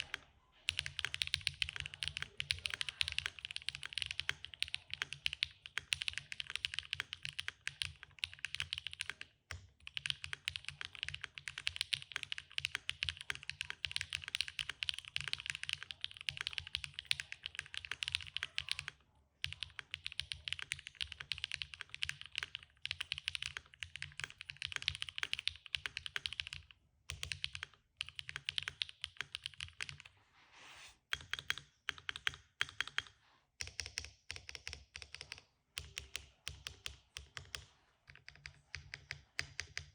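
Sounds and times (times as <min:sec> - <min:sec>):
fast typing on mechanical keyboard: 0:00.0 - 0:30.0, 0:31.1 - 0:39.9.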